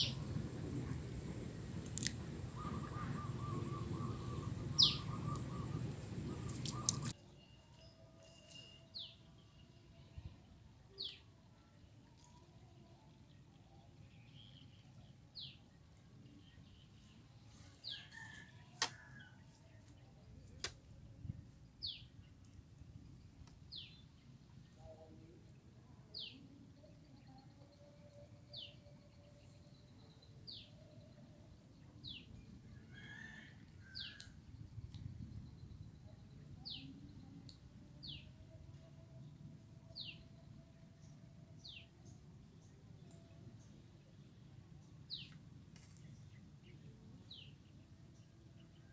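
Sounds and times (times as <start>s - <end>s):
bird whistled call: 2.4s - 7.1s.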